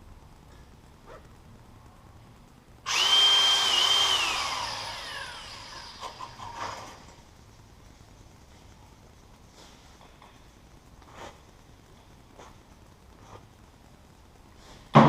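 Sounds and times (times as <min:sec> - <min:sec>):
angle grinder whining: 0:02.9 - 0:07.0.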